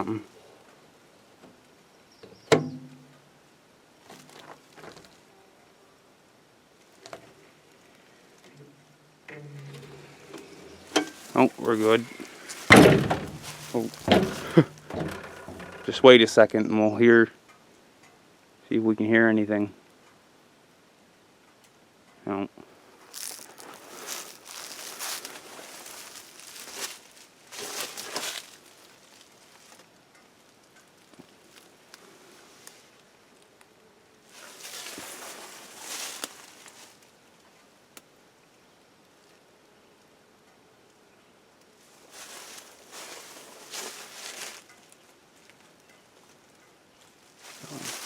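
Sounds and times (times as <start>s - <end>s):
outdoor ambience: 0.0s - 48.0s
rustling and crinkling: 4.0s - 5.3s, 6.8s - 16.1s, 23.0s - 37.6s, 41.7s - 48.0s
footsteps: 9.5s - 16.0s, 23.0s - 29.8s, 34.3s - 37.0s, 42.0s - 44.7s, 47.4s - 48.0s.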